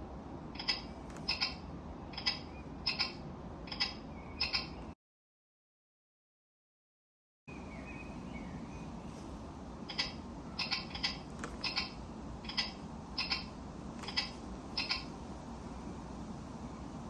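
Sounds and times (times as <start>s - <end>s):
low background hum: 0.0s - 5.0s, 7.5s - 17.0s.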